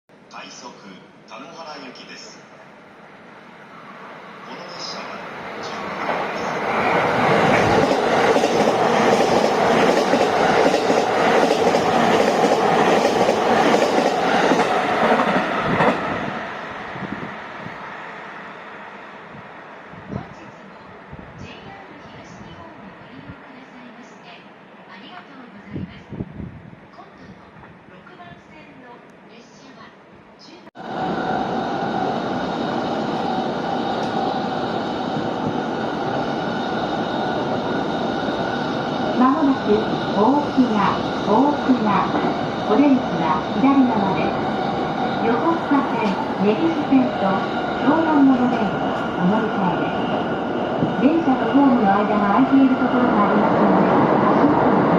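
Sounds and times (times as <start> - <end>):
train wheels rumbling on rail: 4.8 - 17.8, 30.8 - 54.9
train wheels clacking over rails: 5.8 - 16.2.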